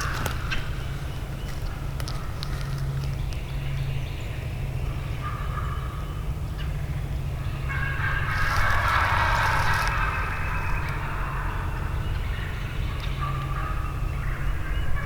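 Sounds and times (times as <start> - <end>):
steady low rumble: 6.9 - 14.4
turkey gobbling: 7.4 - 15.0.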